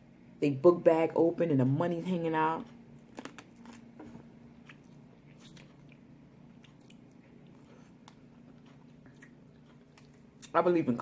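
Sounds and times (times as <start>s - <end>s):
person chewing: 3.0s - 10.6s.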